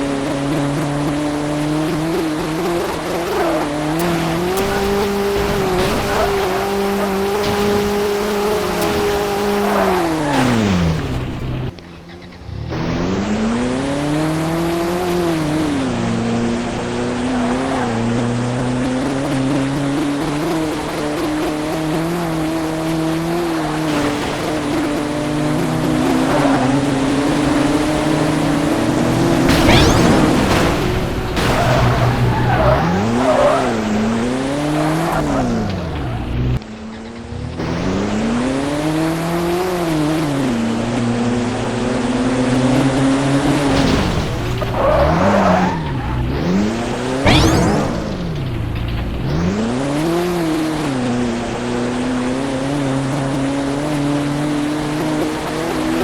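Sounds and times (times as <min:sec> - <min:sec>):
car engine revving: 0:00.0 - 0:56.0
tyre squeals: 0:02.1 - 0:13.1, 0:23.3 - 0:37.2, 0:44.6 - 0:48.7.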